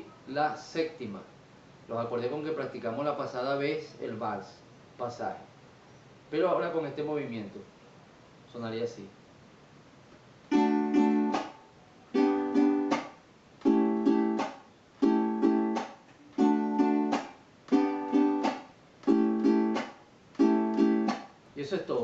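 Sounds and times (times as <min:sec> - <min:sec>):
cuatro strummed in waltz pattern: 0:10.5 - 0:11.6, 0:12.2 - 0:21.2
muted strum click: 0:17.1 - 0:21.3.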